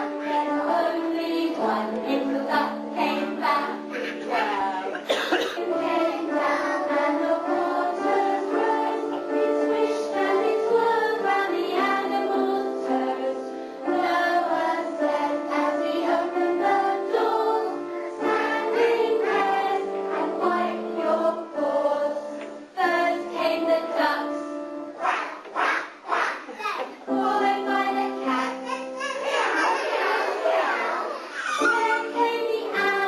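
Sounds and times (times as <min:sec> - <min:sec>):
choir singing: 0:00.0 - 0:33.0.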